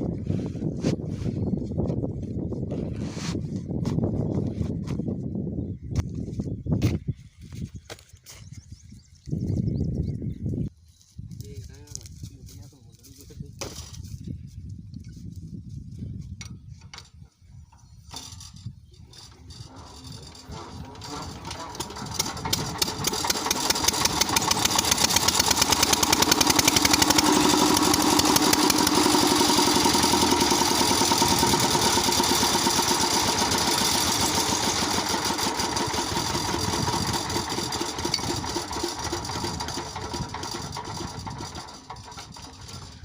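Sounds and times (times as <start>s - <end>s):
diesel pump engine running: 19.2s - 43.0s.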